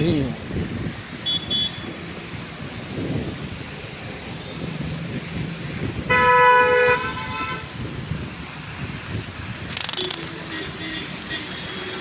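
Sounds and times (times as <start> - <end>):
traffic rumble: 0.0 - 12.0
vehicle horn honking: 1.2 - 1.9, 6.1 - 7.7, 10.0 - 12.0.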